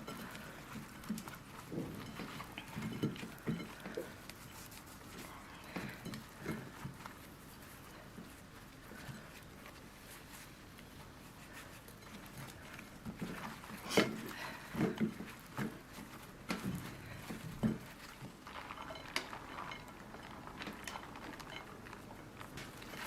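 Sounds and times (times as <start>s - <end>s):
utensils clinking against dishes: 0.0s - 7.8s.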